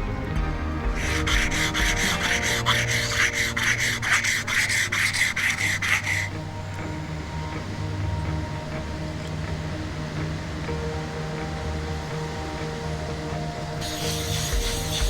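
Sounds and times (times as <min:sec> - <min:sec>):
background music: 0:00.0 - 0:15.0
plane blade rubbing on abrasive: 0:01.0 - 0:06.4, 0:13.8 - 0:15.0.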